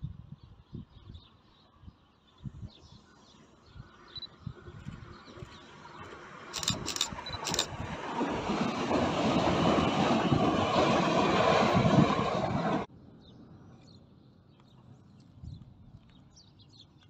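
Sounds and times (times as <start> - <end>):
train wheels rumbling on rails: 5.4 - 12.9.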